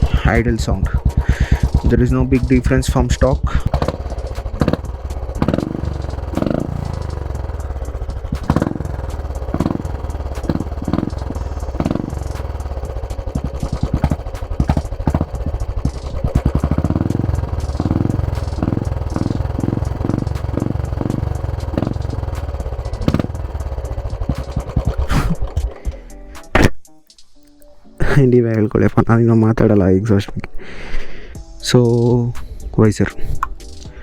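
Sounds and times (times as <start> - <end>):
engine revving: 0.0 - 25.8
motorcycle engine idling: 0.0 - 26.5.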